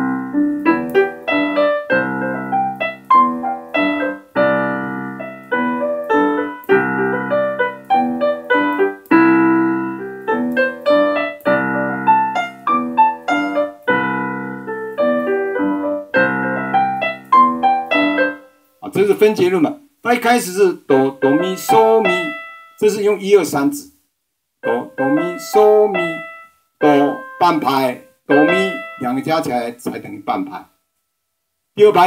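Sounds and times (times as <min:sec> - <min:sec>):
piano arpeggiated accompaniment: 0:00.0 - 0:18.5, 0:21.2 - 0:23.0, 0:24.6 - 0:29.8.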